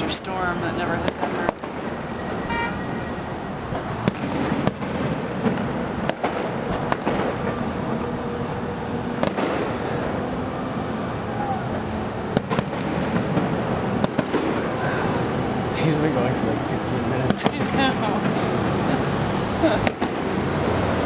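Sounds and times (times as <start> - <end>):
rumbling crackle: 3.5 - 19.0
firework shells banging: 3.7 - 7.8.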